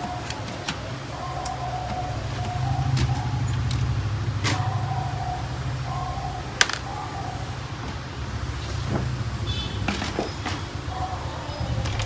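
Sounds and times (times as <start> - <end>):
printer parts clicking and knocking: 0.0 - 4.6, 6.6 - 7.0, 9.8 - 10.8
steady low hum: 0.0 - 12.0.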